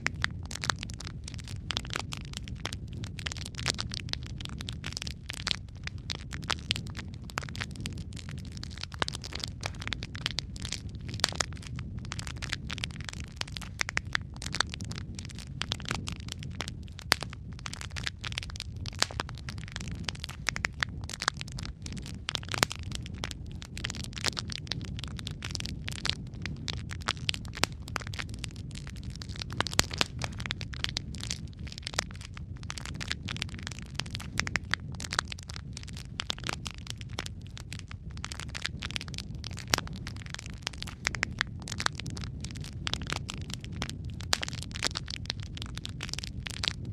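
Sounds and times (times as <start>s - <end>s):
burning logs crackling and popping: 0.0s - 46.9s
rumble of fire flames: 0.0s - 46.9s.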